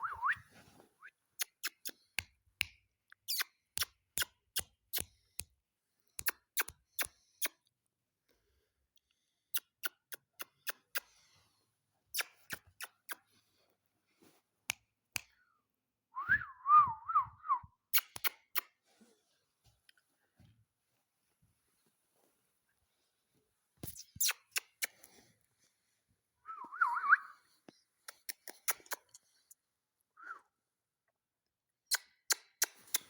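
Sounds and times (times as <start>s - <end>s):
parrot beak clicking: 9.6s - 11.0s, 18.0s - 18.7s, 28.0s - 29.2s, 31.9s - 33.0s.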